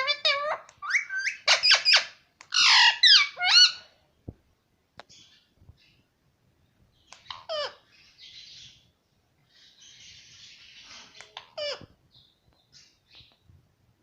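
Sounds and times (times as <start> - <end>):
parrot raspy chattering: 0.0 - 3.8, 7.2 - 7.9
parrot squawks: 0.0 - 3.9.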